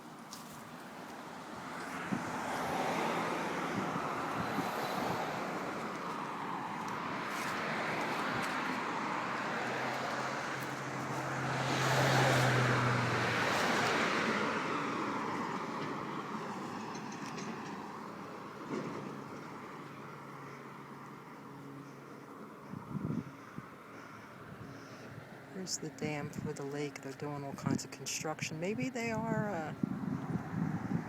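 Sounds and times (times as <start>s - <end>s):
vehicle engine hum passing: 0.0s - 28.1s, 28.7s - 31.0s
road traffic rush: 0.0s - 31.0s.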